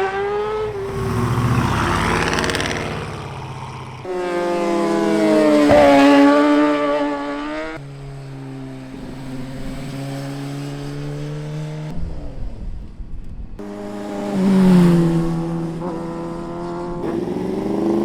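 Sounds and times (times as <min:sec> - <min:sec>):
motorcycle engine pulling hard: 0:00.4 - 0:06.9.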